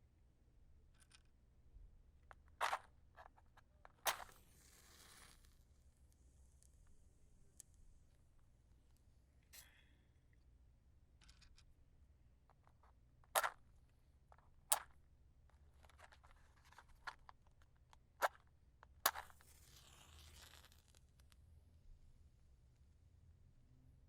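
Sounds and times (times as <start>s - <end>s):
match striking and flaring: 4.0s - 5.7s, 19.1s - 21.1s
matches clicking and tapping: 14.7s - 14.9s, 18.2s - 21.0s.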